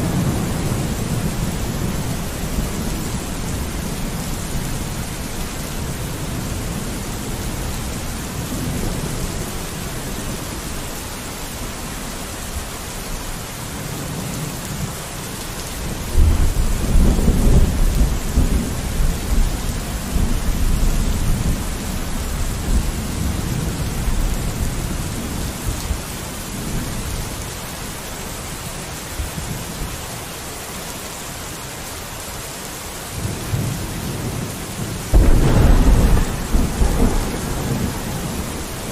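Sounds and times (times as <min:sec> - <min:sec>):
thunder rumbling: 0:00.0 - 0:10.3, 0:15.9 - 0:25.9, 0:33.3 - 0:38.9
rain on a window: 0:00.0 - 0:38.9.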